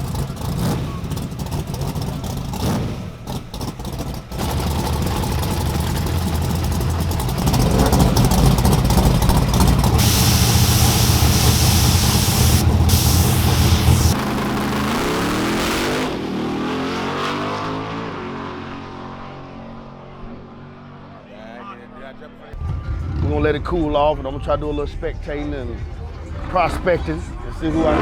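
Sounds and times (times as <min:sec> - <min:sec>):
race car engine running: 0:00.0 - 0:16.2
hissing rush: 0:07.9 - 0:14.2.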